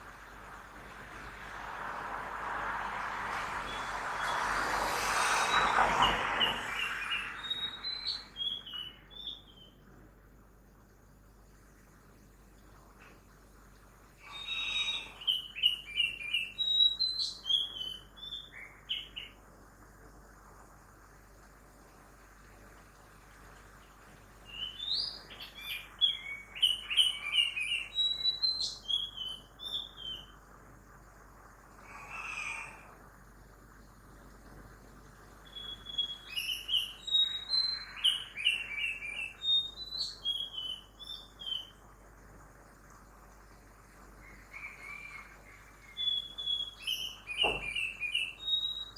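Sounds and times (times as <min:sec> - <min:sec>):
songbird singing: 0:00.0 - 0:10.5, 0:14.1 - 0:19.5, 0:23.7 - 0:30.6, 0:33.7 - 0:42.1, 0:44.1 - 0:48.9
faint traffic hum: 0:00.0 - 0:16.7, 0:29.2 - 0:39.5
background city noise hiss: 0:00.0 - 0:48.9
birdsong whistles and chirps: 0:03.6 - 0:09.8, 0:14.2 - 0:19.4, 0:24.4 - 0:30.4, 0:35.4 - 0:41.8, 0:44.2 - 0:48.9.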